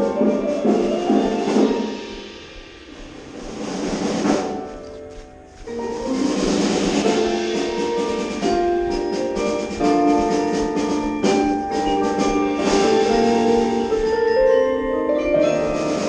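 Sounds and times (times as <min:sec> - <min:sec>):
keyboard percussion chords: 0:00.0 - 0:16.0
sharp drum strokes: 0:00.0 - 0:16.0.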